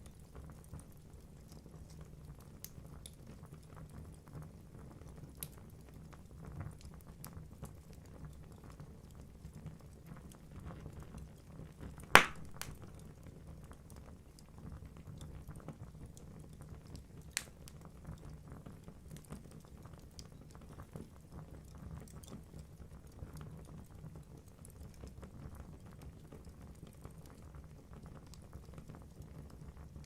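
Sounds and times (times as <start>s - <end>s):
logs crackling: 12.2s - 13.1s
sharp pop from fire: 12.2s - 13.1s.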